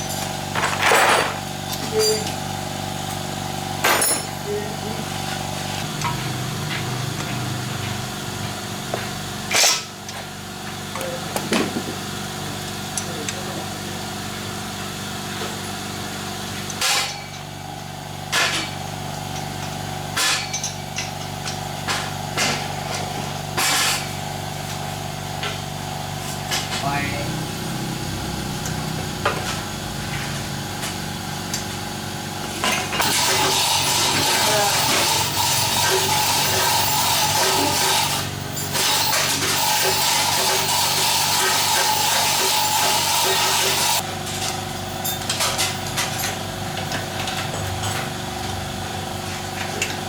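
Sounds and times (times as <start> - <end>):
metal tools knocking: 3.9 - 4.5
machine hum: 24.2 - 44.0.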